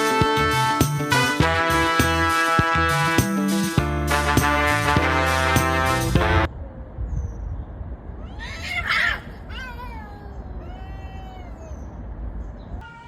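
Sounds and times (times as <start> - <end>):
cat screeching: 8.2 - 11.9, 12.8 - 13.0
cats yowling: 8.2 - 12.0, 12.8 - 13.0.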